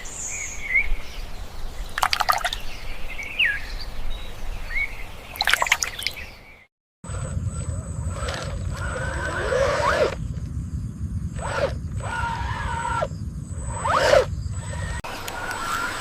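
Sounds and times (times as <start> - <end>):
electric motors and gears whining: 7.1 - 16.0.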